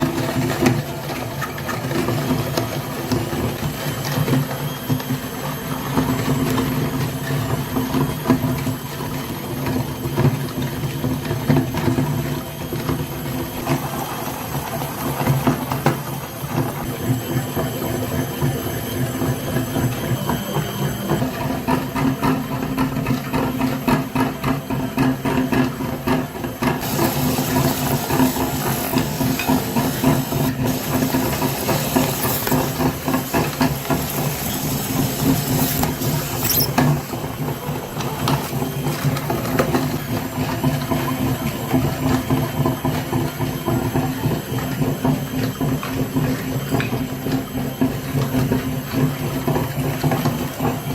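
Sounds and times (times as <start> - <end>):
hiss: 26.8 - 36.7
small motor humming: 26.8 - 37.6.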